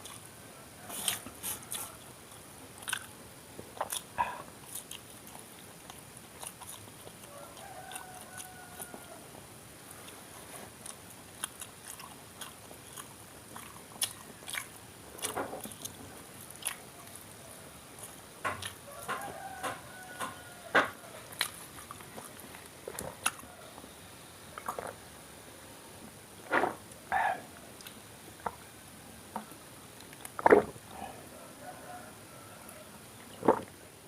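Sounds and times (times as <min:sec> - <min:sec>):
biting and chewing crisp food: 0:00.0 - 0:09.2, 0:09.8 - 0:23.9, 0:24.5 - 0:25.1, 0:29.4 - 0:31.2.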